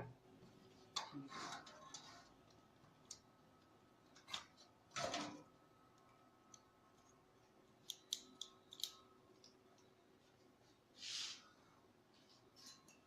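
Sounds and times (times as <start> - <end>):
short scrape: 11.0 - 11.5.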